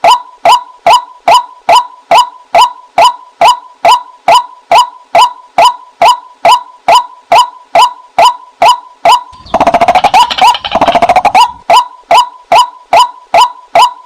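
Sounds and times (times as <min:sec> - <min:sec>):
waterhen calling: 0:09.4 - 0:12.7.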